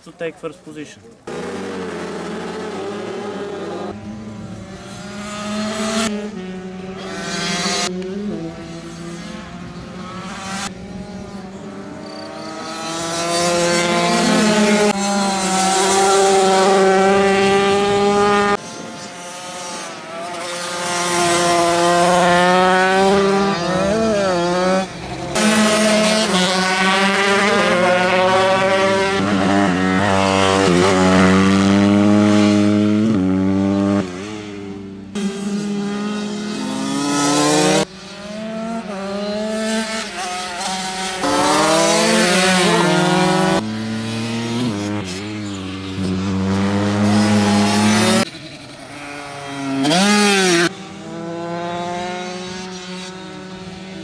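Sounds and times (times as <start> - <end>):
motorcycles revving hard: 1.2 - 54.0.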